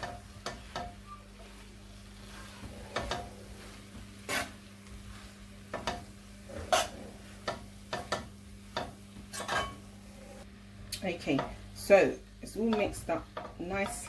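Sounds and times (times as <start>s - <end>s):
utensil scraping a wok: 0.0s - 8.2s, 9.3s - 10.5s.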